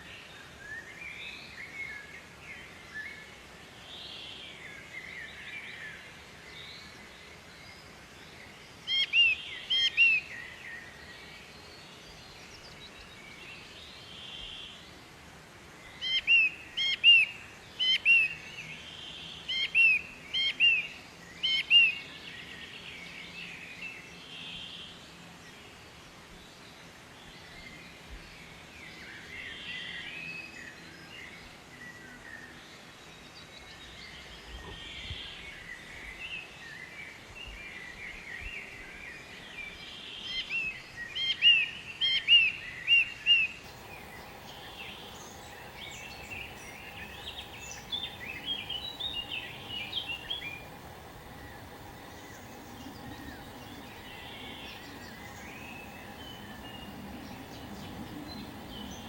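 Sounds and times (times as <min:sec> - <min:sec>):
birds chattering and singing: 0:43.6 - 0:59.0.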